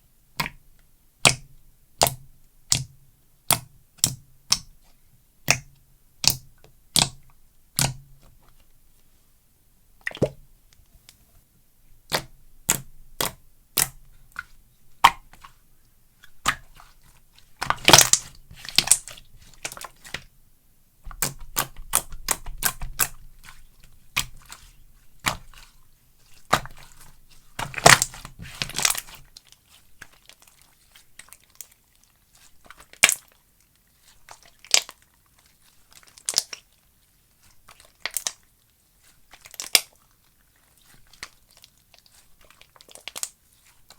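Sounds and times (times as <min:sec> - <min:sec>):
slime popping and crackling: 0:17.5 - 0:20.1, 0:26.3 - 0:29.4.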